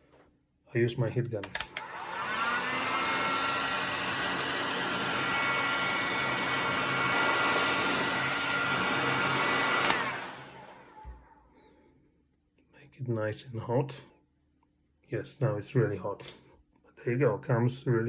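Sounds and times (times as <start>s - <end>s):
heat gun switch click: 1.4s - 2.0s, 9.8s - 10.1s
heat gun fan whine: 1.4s - 11.4s.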